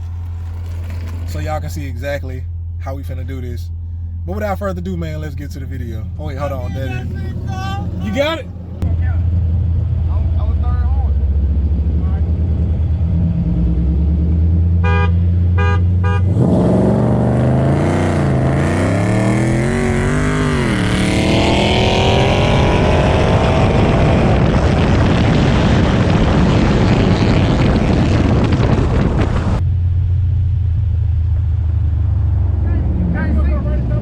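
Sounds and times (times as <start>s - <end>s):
car engine idling: 0.0s - 16.3s, 29.6s - 34.0s
car engine at full throttle: 0.0s - 34.0s.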